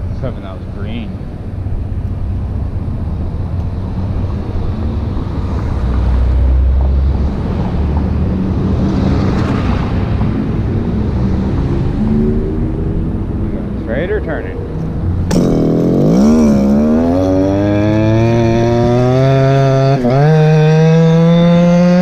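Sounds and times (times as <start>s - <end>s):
scooter engine running: 15.3s - 22.0s.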